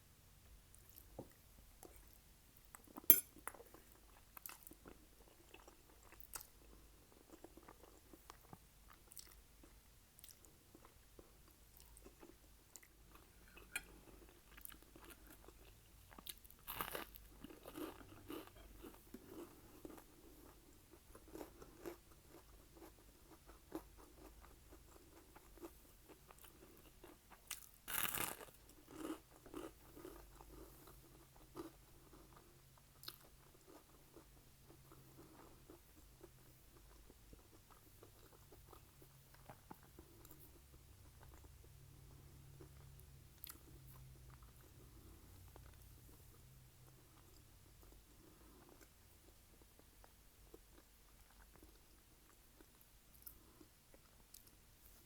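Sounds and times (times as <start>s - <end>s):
person chewing: 33.0s - 45.9s.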